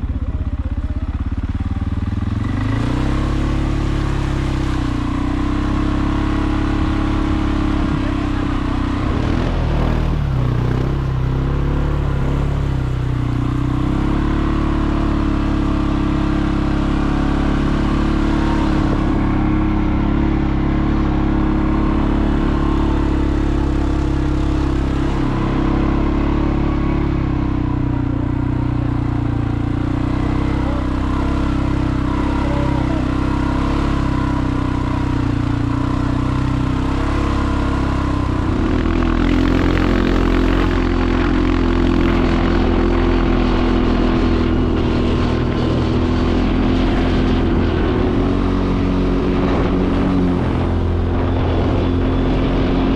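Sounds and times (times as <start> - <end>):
vehicle engine humming: 0.0 - 52.9.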